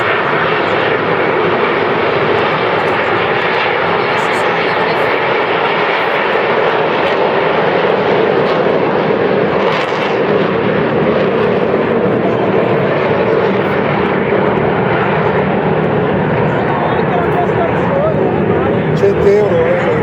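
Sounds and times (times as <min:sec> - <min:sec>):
jet aircraft flying over: 0:00.0 - 0:20.0.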